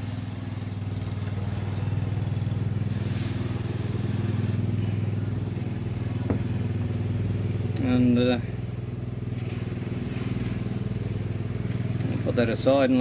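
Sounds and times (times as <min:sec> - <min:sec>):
aerosol spray hiss: 0:00.0 - 0:01.0, 0:02.8 - 0:04.7
cricket chirping: 0:00.0 - 0:04.9, 0:06.1 - 0:07.3, 0:08.8 - 0:09.9
low hum: 0:00.0 - 0:07.8.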